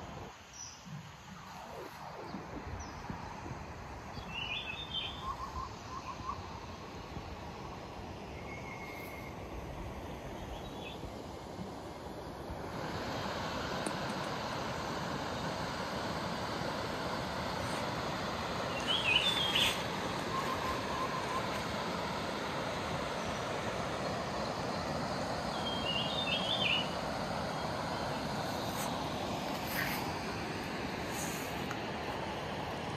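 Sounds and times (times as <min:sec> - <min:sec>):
bird chirping: 0:04.2 - 0:06.4, 0:18.7 - 0:21.6, 0:25.5 - 0:26.9
flowing creek: 0:10.9 - 0:32.9.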